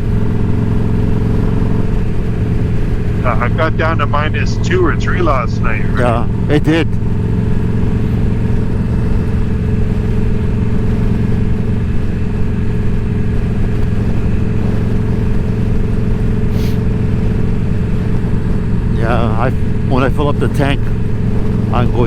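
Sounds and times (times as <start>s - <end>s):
motorcycle engine running steadily: 0.0s - 3.4s, 6.2s - 20.0s.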